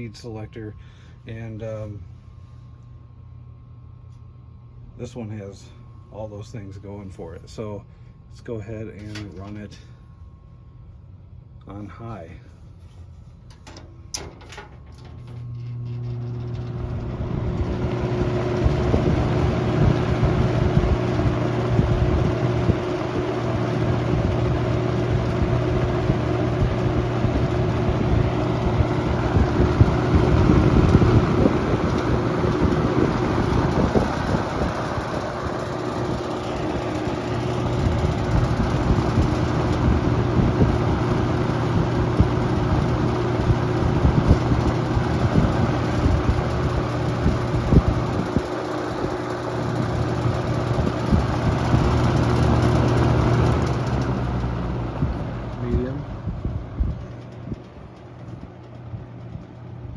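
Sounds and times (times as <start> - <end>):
box fan running: 0.0 - 59.9.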